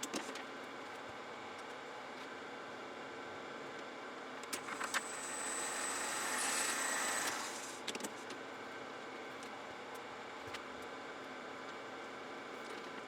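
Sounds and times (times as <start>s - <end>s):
cutting noise with high whine: 4.6s - 7.9s
metal lathe running: 4.8s - 7.8s.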